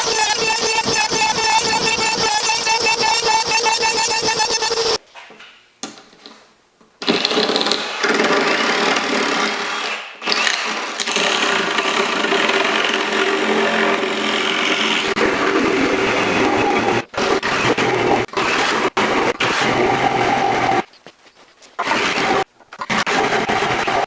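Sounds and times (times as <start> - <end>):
power tool running on wood: 0.0 - 5.0.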